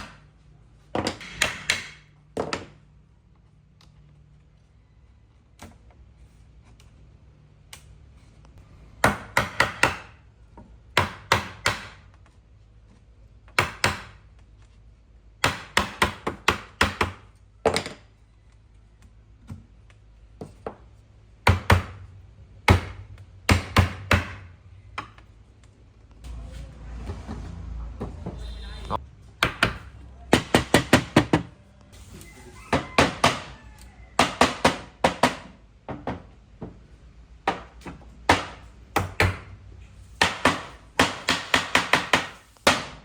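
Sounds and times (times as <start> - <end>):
hammer knocking on wood: 29.4 - 31.5.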